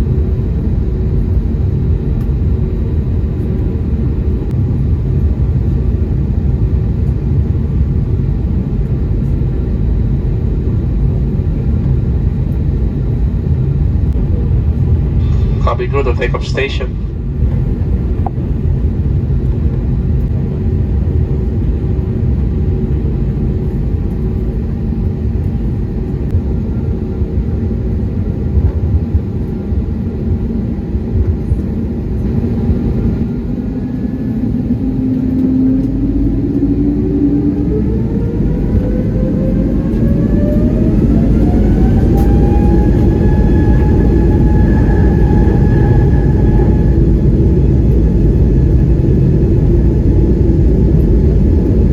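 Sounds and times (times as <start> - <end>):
steady low rumble: 0.0 - 51.9
jet engines spooling up: 11.9 - 19.4, 22.6 - 51.9.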